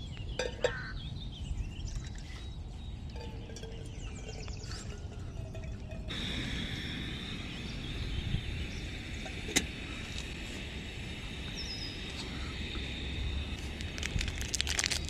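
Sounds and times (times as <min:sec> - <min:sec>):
high-pitched gas stove hiss: 0:06.1 - 0:15.0.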